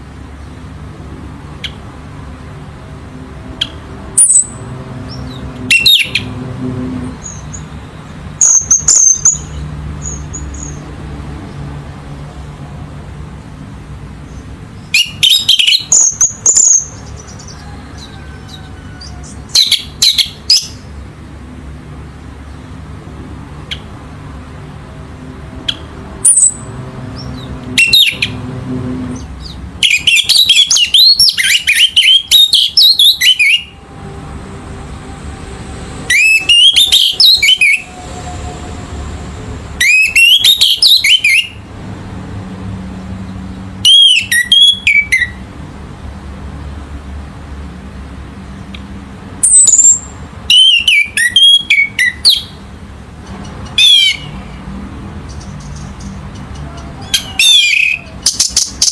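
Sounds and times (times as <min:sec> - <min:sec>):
steady low hum: 0:00.0 - 0:08.4, 0:33.6 - 0:36.1
thrush singing whistled phrases: 0:29.8 - 0:33.8, 0:36.1 - 0:38.0, 0:39.8 - 0:41.6, 0:43.8 - 0:45.4, 0:49.4 - 0:52.6, 0:53.8 - 0:54.4.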